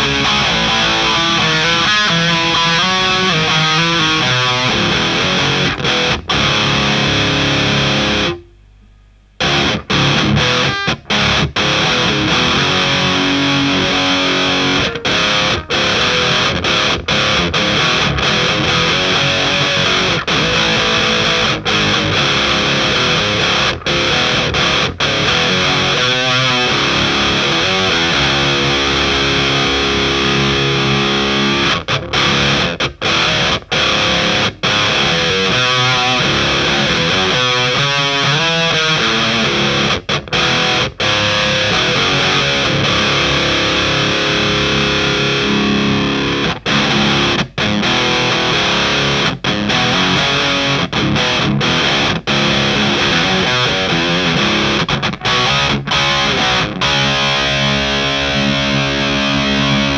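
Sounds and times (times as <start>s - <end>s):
distorted electric guitar riffing: 0.0s - 8.6s, 9.3s - 59.9s.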